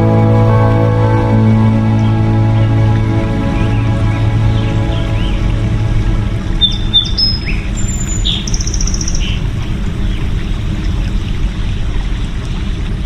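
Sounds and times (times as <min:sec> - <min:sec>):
low rushing noise: 0:00.0 - 0:13.0
small birds chirping: 0:06.6 - 0:11.4.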